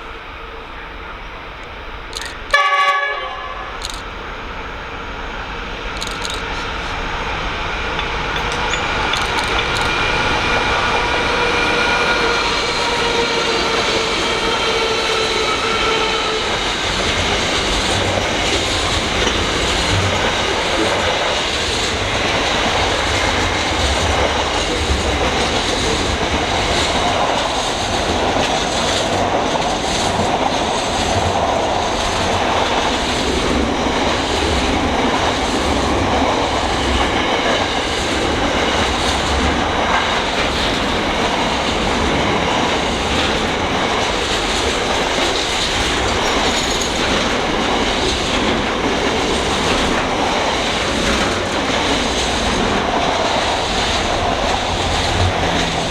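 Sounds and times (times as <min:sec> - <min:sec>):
train wagons rumbling past: 0:00.0 - 0:55.9
wheels clacking over rail joints: 0:05.7 - 0:55.9.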